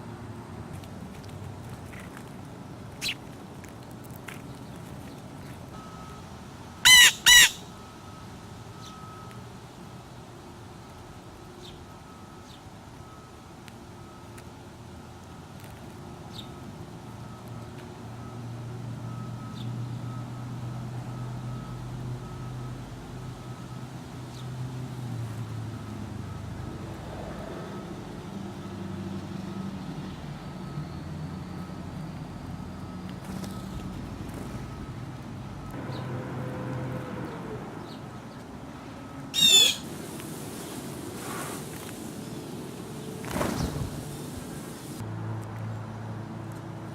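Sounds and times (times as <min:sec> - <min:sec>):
bird squawks: 0:06.8 - 0:07.7, 0:39.4 - 0:39.9.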